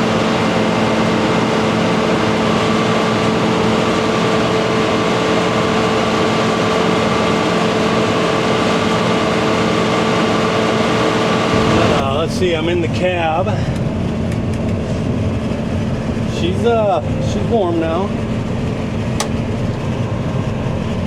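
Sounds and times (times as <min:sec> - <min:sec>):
diesel engine running: 0:00.0 - 0:21.0
mechanical whine: 0:00.0 - 0:21.0.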